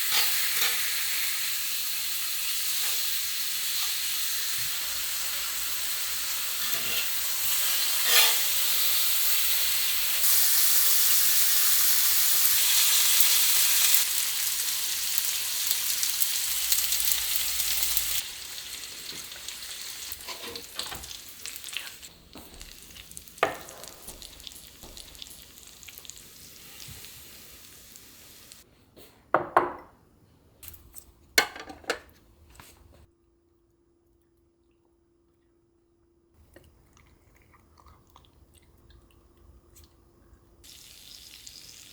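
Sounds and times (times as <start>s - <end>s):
food sizzling in a pan: 0.0s - 28.7s, 40.6s - 41.9s.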